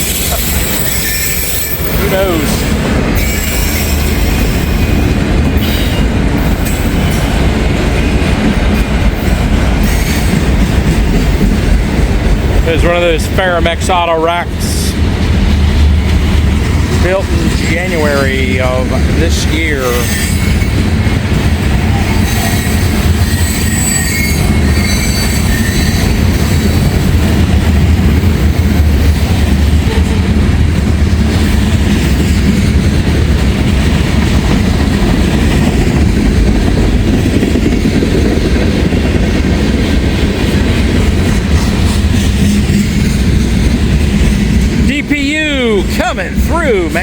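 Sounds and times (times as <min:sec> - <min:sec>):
high wheel squeal: 0:00.0 - 0:02.4, 0:03.2 - 0:05.0, 0:22.2 - 0:26.8
train wheels rumbling on rail: 0:00.0 - 0:47.0.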